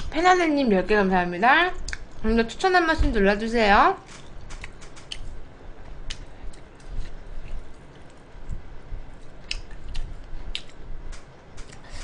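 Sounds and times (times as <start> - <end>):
sharp clicks: 4.1 - 5.2.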